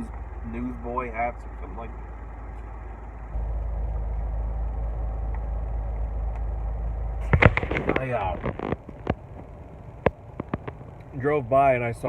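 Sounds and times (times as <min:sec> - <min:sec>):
car engine running: 0:00.0 - 0:12.0
sharp clicks: 0:07.2 - 0:11.1.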